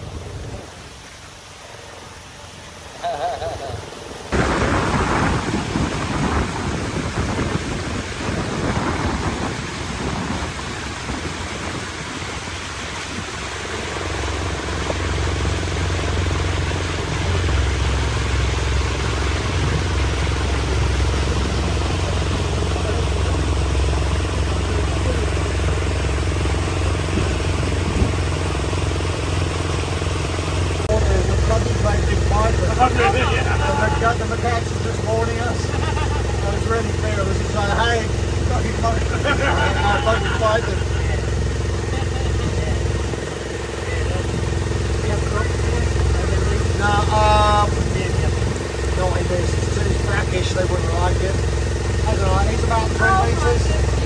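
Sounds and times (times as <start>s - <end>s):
engine droning: 0.0s - 54.0s
uneven rushing noise: 4.2s - 29.2s.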